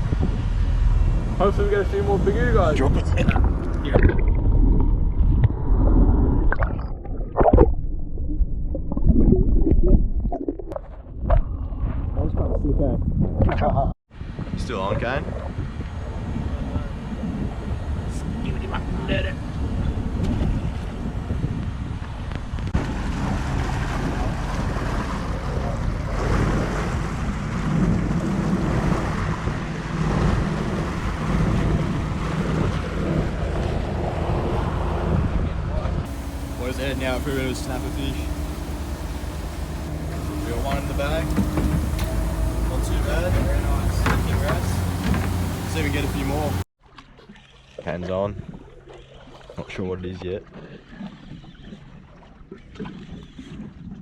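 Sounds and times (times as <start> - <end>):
water sloshing against boat: 0.0 - 7.8, 15.1 - 54.0
motorboat engine hum: 0.0 - 9.1, 15.0 - 46.7
wind and water rumbling: 0.0 - 54.0.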